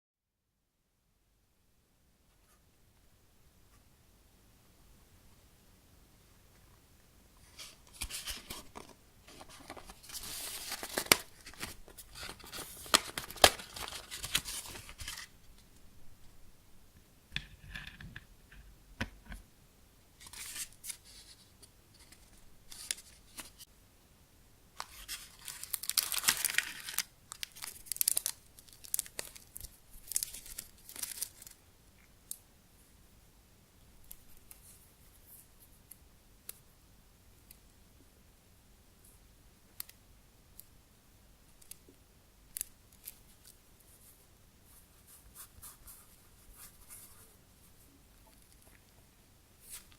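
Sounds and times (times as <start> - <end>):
plastic packaging crinkling and tearing: 7.9 - 15.3, 24.8 - 31.6
quiet rustling: 43.0 - 49.9.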